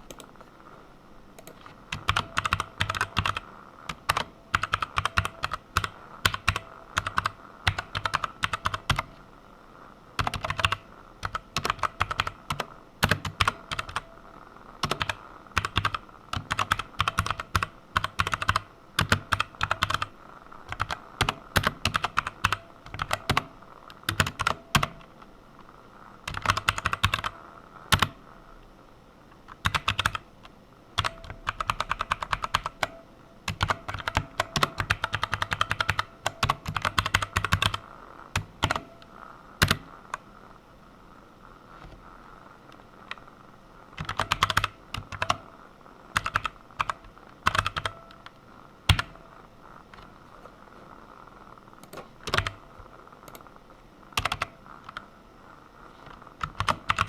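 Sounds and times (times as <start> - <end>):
typing on computer keyboard: 1.4 - 9.2, 10.2 - 14.1, 14.8 - 20.1, 20.7 - 25.1, 26.2 - 28.2, 29.5 - 30.2, 31.0 - 37.8, 38.4 - 38.9, 39.6 - 39.9, 44.0 - 45.5, 46.1 - 48.3, 48.9 - 49.2, 51.8 - 52.6, 54.2 - 55.1, 56.4 - 57.0.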